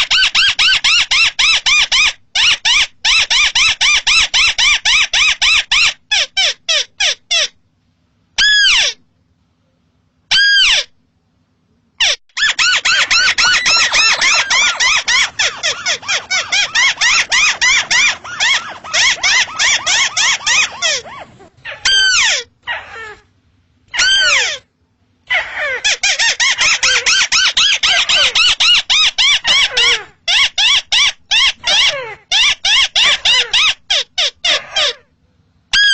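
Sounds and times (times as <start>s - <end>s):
crake calling rapid falling notes: 12.4s - 22.3s.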